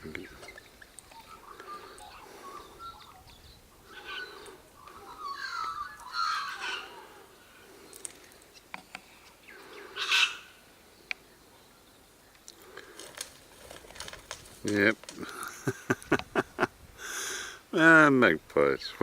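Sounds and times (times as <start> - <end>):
loud harsh bird call: 0.0 - 8.0, 9.5 - 10.7
birds warbling calls: 0.0 - 18.0.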